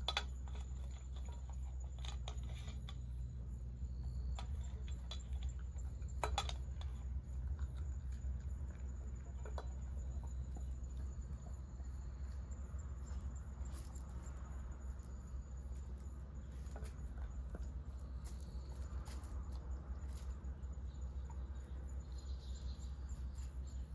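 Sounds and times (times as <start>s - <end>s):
insects chirping high-pitched: 9.8s - 23.9s.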